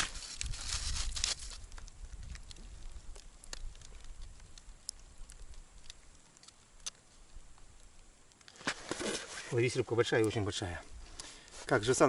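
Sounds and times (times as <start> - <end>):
wind rumble on microphone: 0.1 - 5.7.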